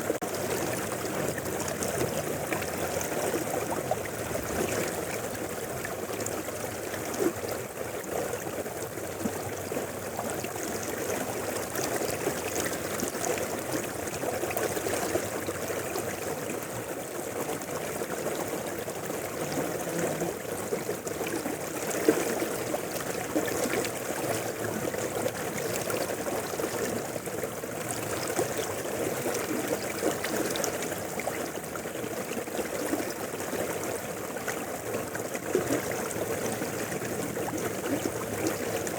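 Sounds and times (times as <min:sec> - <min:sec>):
water splashes: 0:00.0 - 0:38.9
river water rushing: 0:17.3 - 0:38.9.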